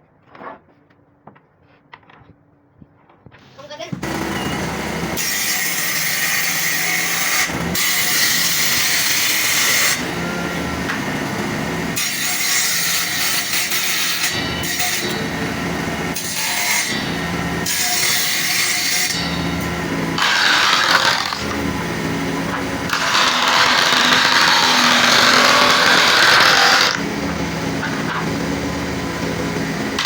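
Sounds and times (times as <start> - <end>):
power tool cutting wood: 4.0 - 30.0
power tool motor hum: 4.0 - 30.0.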